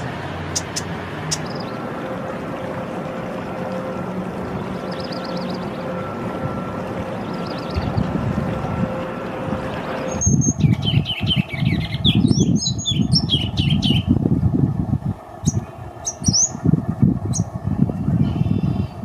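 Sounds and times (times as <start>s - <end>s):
bird singing chattering notes: 0.0s - 1.8s, 4.8s - 6.0s, 7.1s - 8.1s, 10.0s - 14.2s, 15.4s - 17.6s
faint hum: 0.0s - 19.0s
low gusting rumble: 0.0s - 19.0s.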